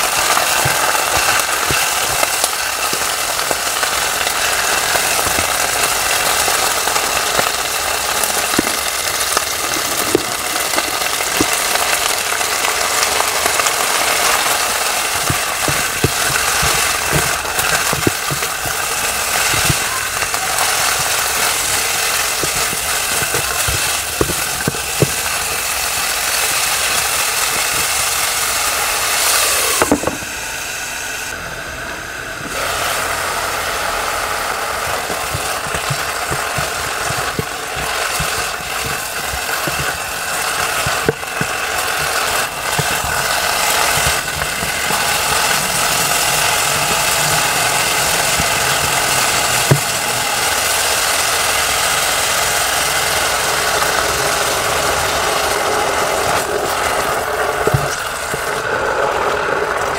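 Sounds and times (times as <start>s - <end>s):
spatula tapping and scraping: 0.0s - 28.5s, 34.7s - 50.1s, 56.2s - 58.6s
chicken sizzling in a pan: 0.0s - 31.2s, 32.5s - 59.9s.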